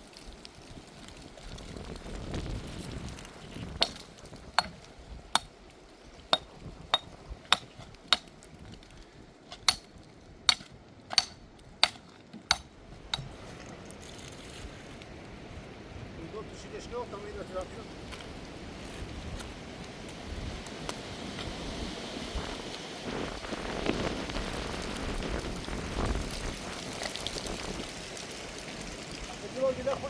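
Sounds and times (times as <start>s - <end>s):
sharp clinking strikes: 10.5s - 12.6s.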